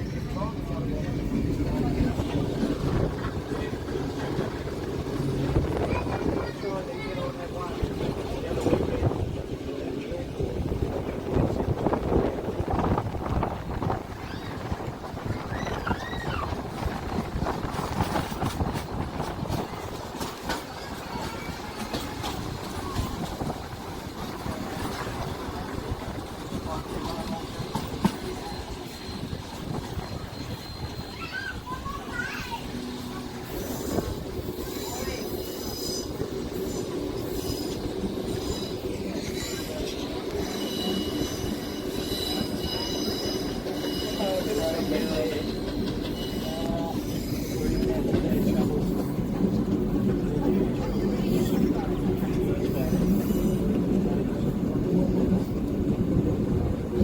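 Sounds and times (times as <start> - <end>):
train rumbling on track: 0.0 - 57.0
high wheel squeals: 27.1 - 48.0.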